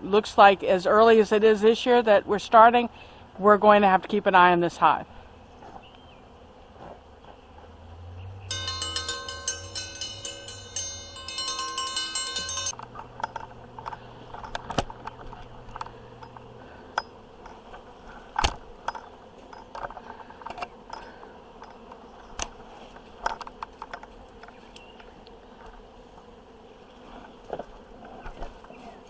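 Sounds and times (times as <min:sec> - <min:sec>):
bees humming: 0:02.6 - 0:29.0
sharp clicks and knocks: 0:08.7 - 0:22.6.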